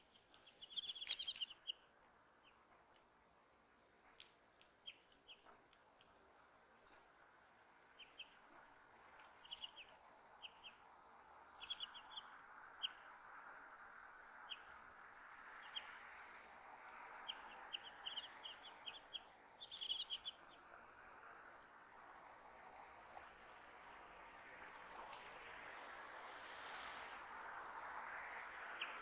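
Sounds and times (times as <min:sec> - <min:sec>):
faint steady hiss: 0:00.0 - 0:29.0
small birds chirping: 0:00.1 - 0:01.8, 0:09.4 - 0:10.8, 0:11.6 - 0:13.0, 0:17.2 - 0:20.7.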